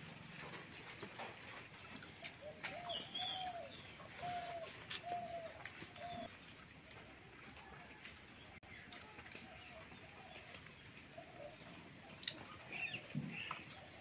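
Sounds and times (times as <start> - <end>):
bird calling: 2.2 - 6.3.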